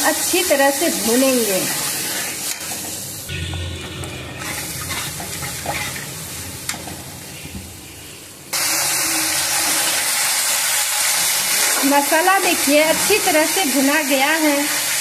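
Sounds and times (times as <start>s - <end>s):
paste sizzling in a pan: 0.0s - 3.4s
metal spatula scraping a pan: 3.3s - 6.8s.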